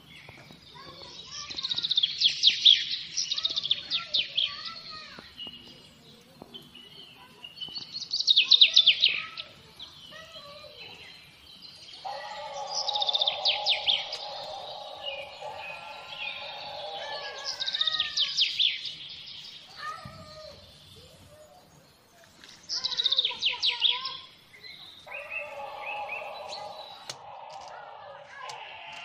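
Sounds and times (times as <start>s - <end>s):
songbird trilling: 12.0s - 19.4s, 22.8s - 29.0s
softer bird chirps: 12.0s - 20.0s, 22.8s - 29.0s
steady low sound: 12.1s - 17.8s, 25.2s - 29.0s.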